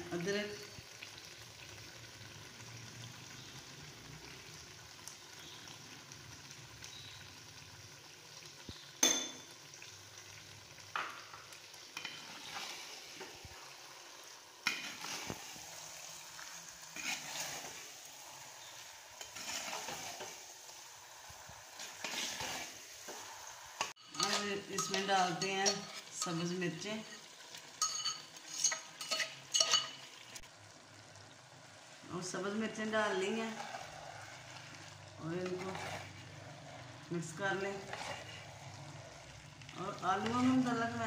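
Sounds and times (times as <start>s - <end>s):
potatoes sizzling in oil: 0.0s - 41.0s
metal spatula scraping: 12.0s - 13.4s, 14.6s - 20.5s, 21.7s - 26.5s, 27.8s - 30.1s, 33.0s - 41.0s.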